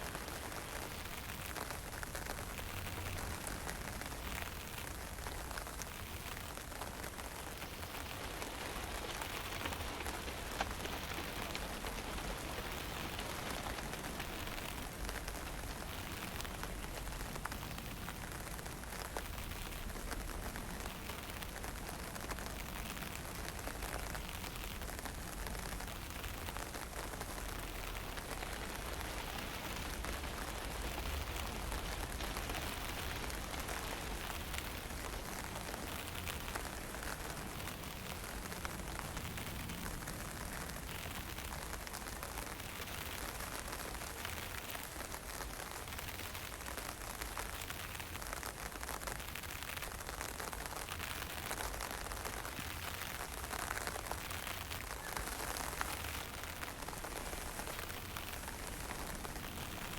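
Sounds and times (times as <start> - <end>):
low rumble of wind: 0.0 - 59.9
drizzle falling: 7.3 - 17.0.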